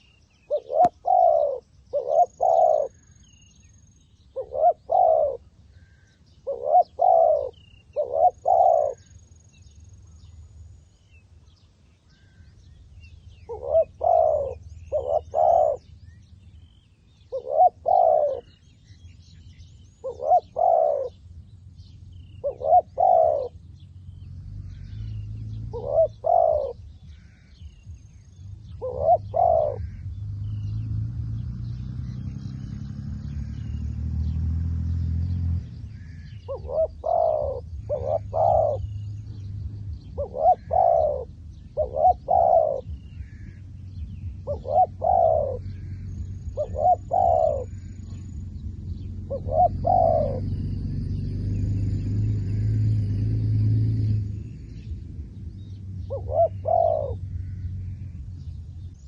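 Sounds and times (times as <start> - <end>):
dove cooing: 0.0 - 3.4, 4.3 - 9.2, 13.4 - 15.9, 17.3 - 18.6, 20.0 - 21.2, 22.3 - 23.7, 24.8 - 27.5, 28.7 - 30.1, 36.0 - 39.0, 40.0 - 50.7, 56.0 - 57.9
small birds chirping: 0.0 - 59.0
low rumble: 26.8 - 59.0.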